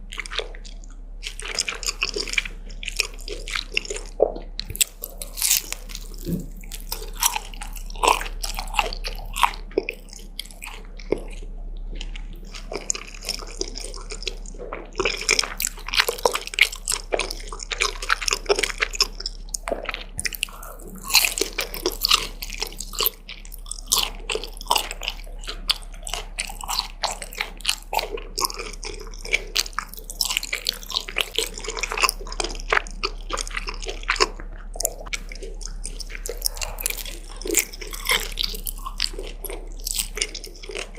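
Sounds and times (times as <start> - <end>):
close-miked chewing: 0.0 - 40.9
crisp crunches: 4.6 - 10.6.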